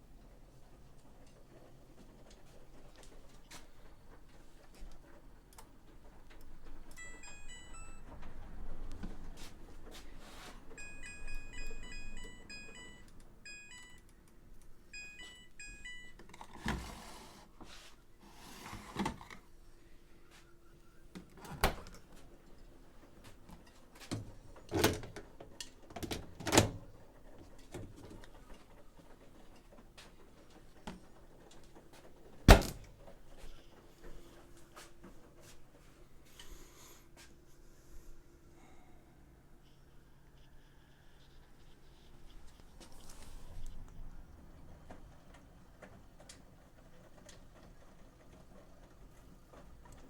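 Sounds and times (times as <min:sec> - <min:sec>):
control panel beeps: 0:06.9 - 0:08.1, 0:10.8 - 0:14.1, 0:14.9 - 0:16.3.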